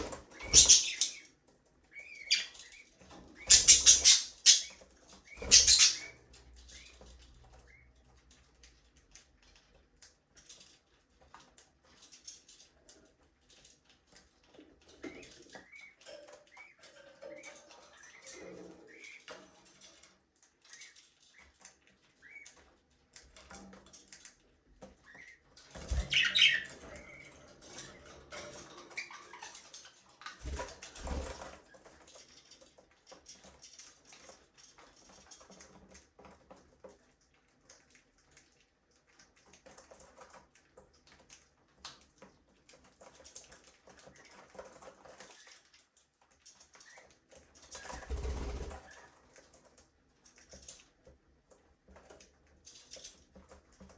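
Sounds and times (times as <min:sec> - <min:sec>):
wings flapping: 0:00.0 - 0:01.1, 0:03.5 - 0:04.7, 0:05.3 - 0:06.1, 0:25.7 - 0:27.2, 0:47.7 - 0:49.1
budgerigars chirping and twittering: 0:00.0 - 0:09.7, 0:14.4 - 0:36.6, 0:42.6 - 0:45.8, 0:46.6 - 0:49.5.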